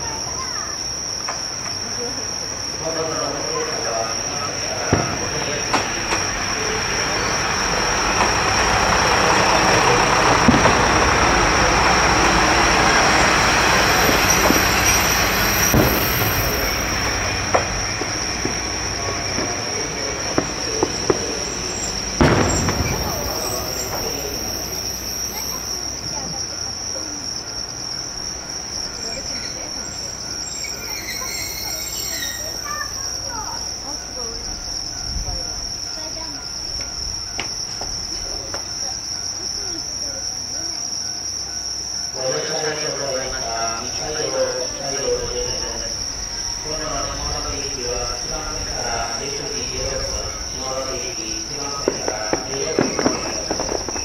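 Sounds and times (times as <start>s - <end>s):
fireworks bangs: 0.0s - 26.6s, 48.4s - 54.0s
crickets chirping: 0.0s - 54.0s
train braking to a stop: 0.0s - 54.0s.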